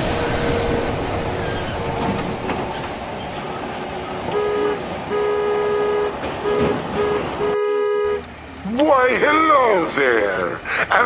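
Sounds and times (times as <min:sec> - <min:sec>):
horn tooting: 0:04.0 - 0:08.3.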